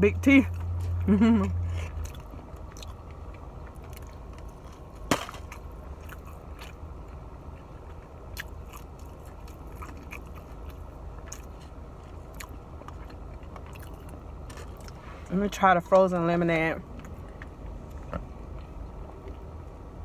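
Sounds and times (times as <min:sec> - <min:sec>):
close-up chewing with mouth smacks: 0:00.5 - 0:15.0.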